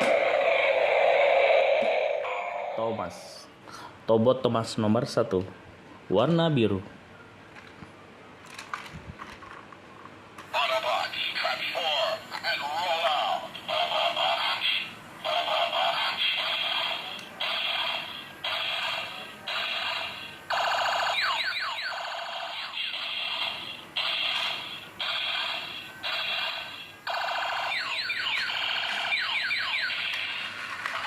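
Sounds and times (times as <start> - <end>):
electronic toy jingle: 20.5 - 26.9, 27.5 - 30.4.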